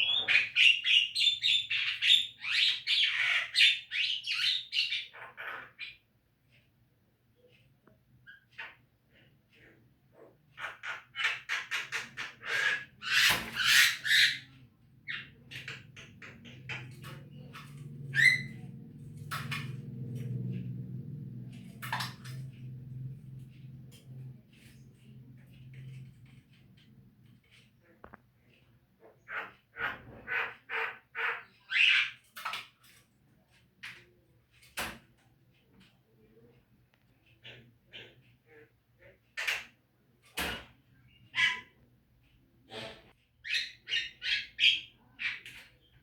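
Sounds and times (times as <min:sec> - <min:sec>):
myna bird calling: 0:00.0 - 0:06.0, 0:10.6 - 0:19.8
low hum: 0:17.0 - 0:26.4.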